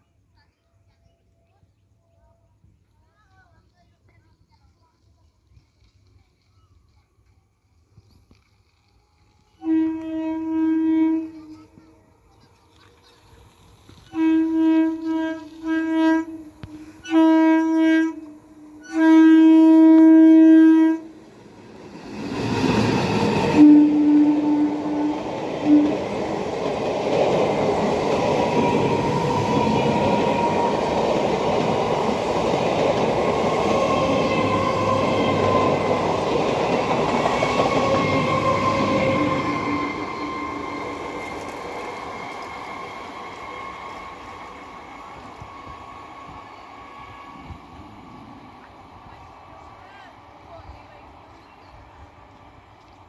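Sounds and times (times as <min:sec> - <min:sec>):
train wheels on rail: 0:02.8 - 0:53.0
train horn blasts: 0:09.5 - 0:11.8, 0:14.0 - 0:21.3, 0:23.4 - 0:26.3, 0:28.4 - 0:32.8, 0:33.6 - 0:41.6.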